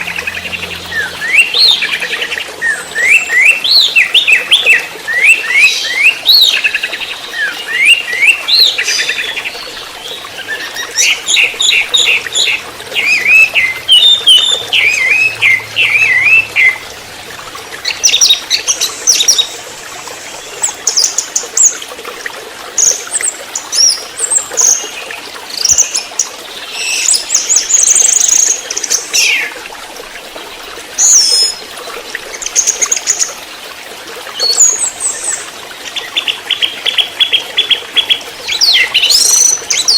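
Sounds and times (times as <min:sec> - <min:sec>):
thrush singing whistled notes: 0:00.0 - 0:17.0.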